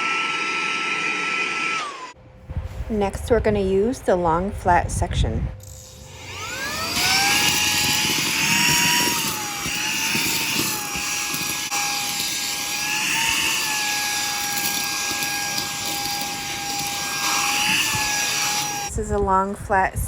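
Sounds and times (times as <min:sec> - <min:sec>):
handheld vacuum motor whine: 0:00.0 - 0:02.2, 0:05.6 - 0:18.9.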